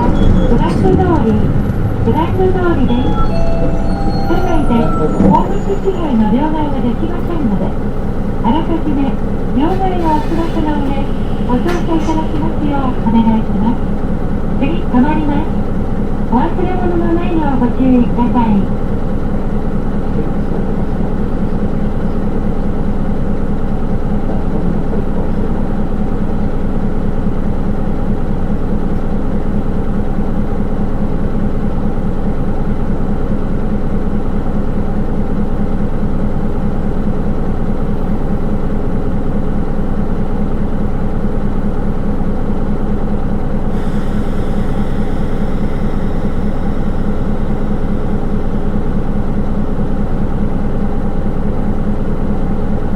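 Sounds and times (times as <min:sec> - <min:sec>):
bus diesel engine: 0:00.0 - 0:52.9.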